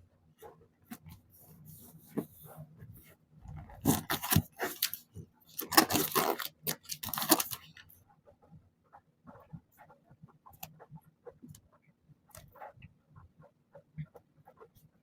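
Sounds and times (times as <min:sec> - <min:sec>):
paper tearing: 0:05.6 - 0:07.6.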